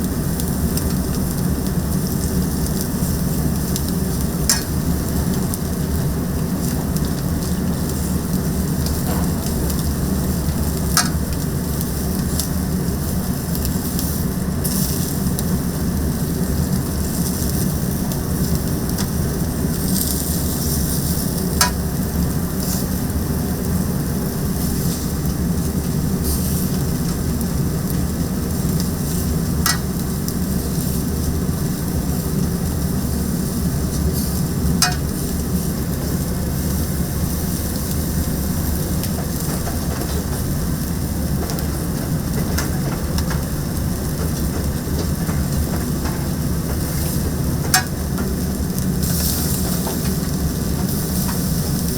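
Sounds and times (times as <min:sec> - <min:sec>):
steady sizzling: 0:00.0 - 0:51.9
low hum: 0:08.4 - 0:12.2.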